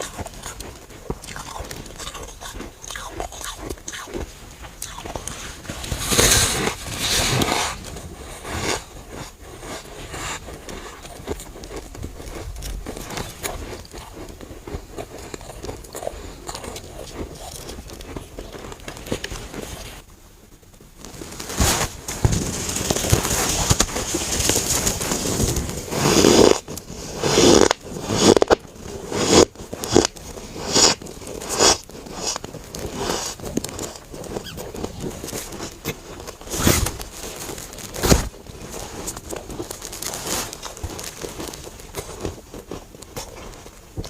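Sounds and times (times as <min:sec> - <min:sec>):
crunching bites of frost chunks: 0:00.0 - 0:07.9, 0:21.4 - 0:44.0.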